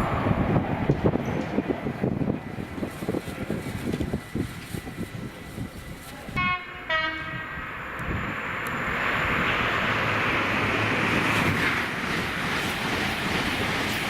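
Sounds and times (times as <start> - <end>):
rush of passing train: 0.0 - 14.0
train two-tone horn: 6.3 - 7.6.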